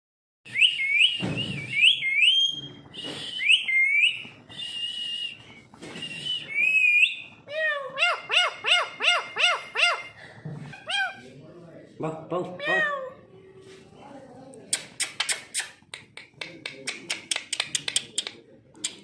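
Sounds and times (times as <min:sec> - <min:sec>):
parrot whistling: 0:00.5 - 0:10.2, 0:10.8 - 0:11.2
parrot repeated calls: 0:07.0 - 0:10.1, 0:10.8 - 0:11.2.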